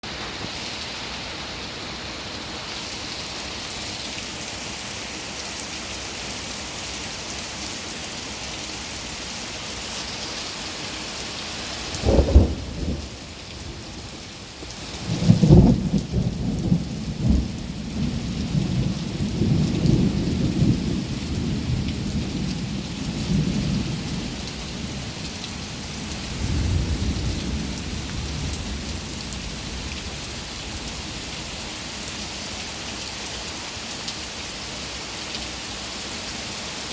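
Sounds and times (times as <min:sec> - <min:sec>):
heavy rain falling: 0:00.0 - 0:36.9
thunder clap: 0:12.0 - 0:13.2
rolling thunder rumble: 0:12.0 - 0:14.1, 0:15.0 - 0:24.1, 0:26.4 - 0:29.8.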